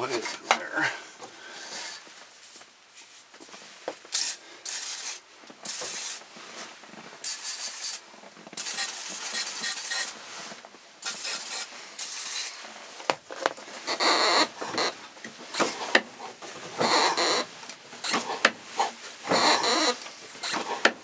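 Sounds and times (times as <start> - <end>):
aerosol can spraying: 4.1 - 6.2, 7.2 - 8.0, 8.6 - 10.1, 11.0 - 12.6.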